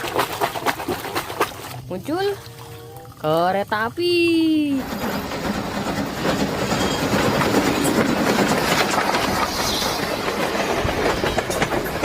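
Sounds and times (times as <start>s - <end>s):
train wheels clattering on tracks: 4.8s - 12.0s.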